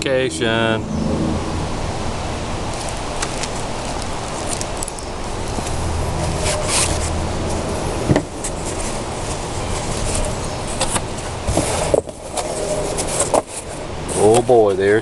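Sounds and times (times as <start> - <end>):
steady low rumble: 0.0 - 12.9
packaging crinkling: 2.7 - 7.5.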